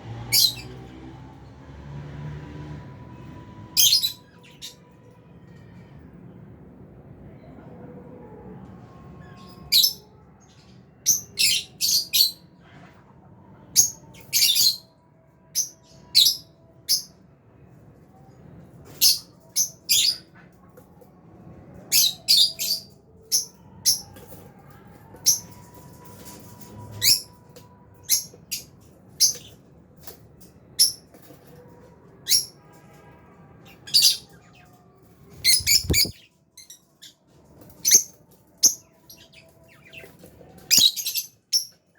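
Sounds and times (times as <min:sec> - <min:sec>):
birds chirping high-pitched: 0:00.2 - 0:00.8, 0:09.2 - 0:12.5, 0:21.9 - 0:24.5, 0:25.2 - 0:29.7, 0:33.6 - 0:41.9.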